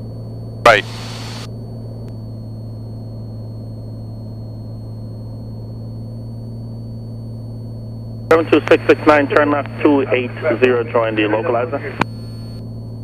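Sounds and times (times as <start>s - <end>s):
airplane engine and propeller droning: 0.1s - 2.0s, 7.5s - 13.0s.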